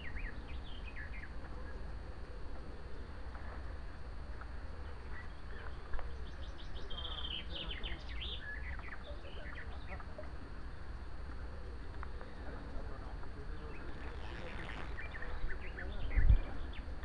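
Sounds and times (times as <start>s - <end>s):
small bird chirping: 4.8s - 10.8s.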